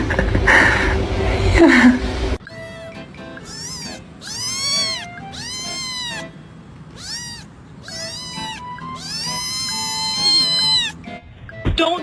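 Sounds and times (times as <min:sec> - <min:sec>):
cat meowing: 0:02.5 - 0:11.1.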